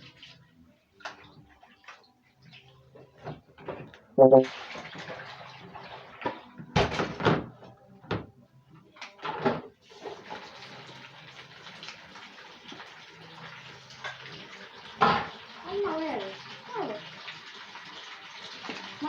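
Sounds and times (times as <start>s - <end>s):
water running from a tap: 4.5s - 6.4s, 9.8s - 19.0s.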